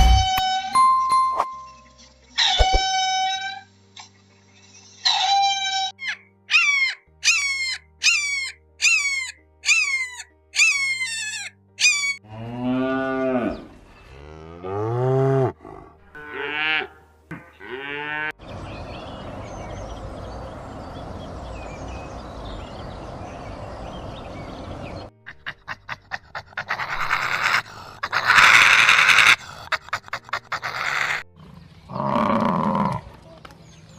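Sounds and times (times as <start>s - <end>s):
cow mooing: 12.2s - 17.0s, 17.6s - 18.3s.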